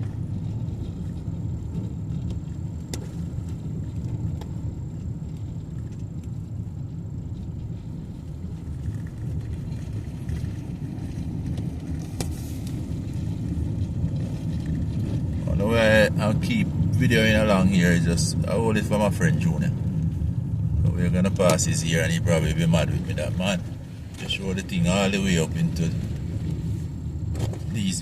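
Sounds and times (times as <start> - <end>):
engine and tyre rumble: 0.0 - 28.0.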